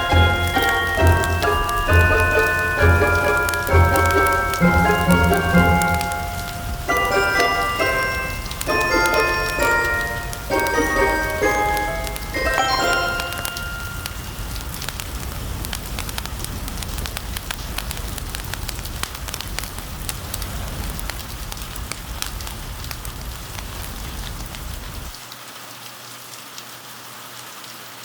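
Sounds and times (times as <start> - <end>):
fireplace crackling and popping: 0.0 - 25.4
steady rain: 0.0 - 28.0.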